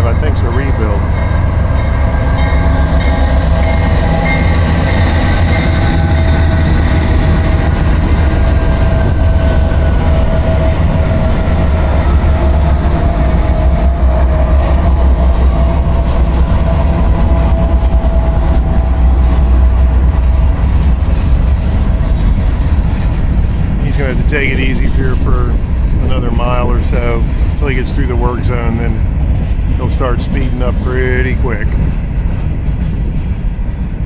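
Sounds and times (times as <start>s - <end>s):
locomotive whine dropping in pitch: 0.0s - 27.6s
diesel locomotive rumble: 0.0s - 34.0s
freight cars rattling on rails: 0.0s - 34.0s.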